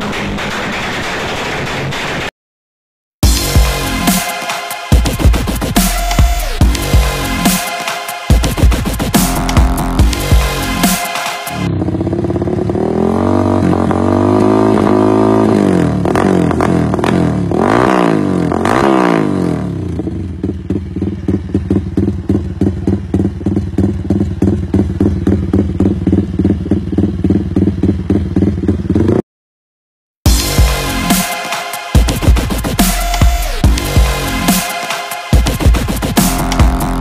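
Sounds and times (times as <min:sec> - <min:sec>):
motorcycle engine revving and idling: 0:08.3 - 0:29.2.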